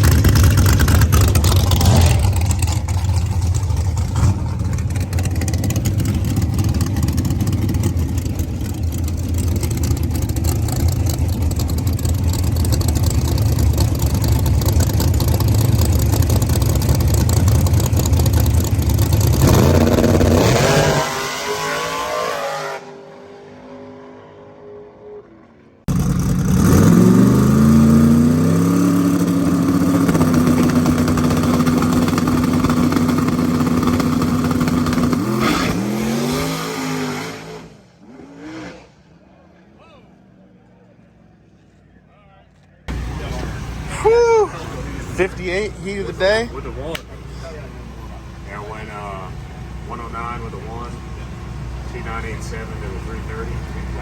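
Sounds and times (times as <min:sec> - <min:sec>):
drag car engine running hard: 0:00.0 - 0:21.4, 0:25.9 - 0:36.4, 0:42.9 - 0:54.0
engine climbing to high note: 0:00.0 - 0:39.3, 0:42.9 - 0:54.0.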